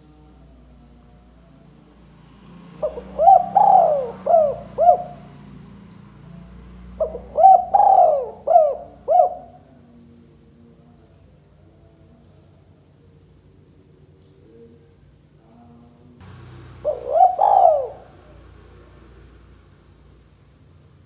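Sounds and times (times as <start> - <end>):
faint high insect-like tone: 0.0 - 21.0
dove cooing: 2.8 - 5.3, 6.9 - 9.6, 16.2 - 19.0.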